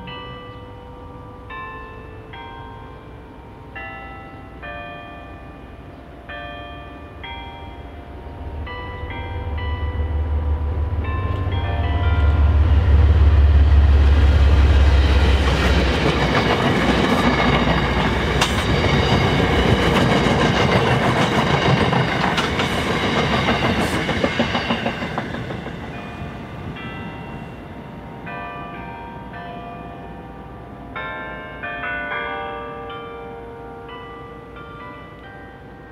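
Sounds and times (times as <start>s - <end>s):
train passing at speed: 7.0s - 31.8s
wheels clattering over rail joints: 11.0s - 26.4s.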